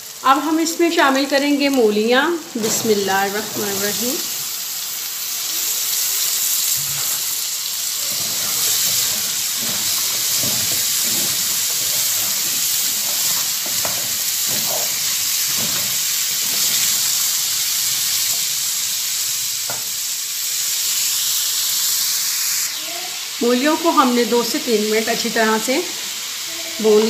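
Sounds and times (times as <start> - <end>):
radish sizzling in oil: 0.0 - 27.0
wooden spatula scraping pan: 8.0 - 17.0.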